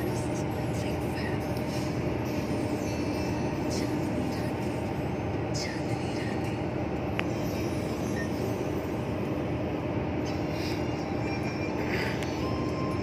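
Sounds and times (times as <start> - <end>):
constant low hum: 0.0 - 13.0
truck engine and road noise: 0.0 - 13.0.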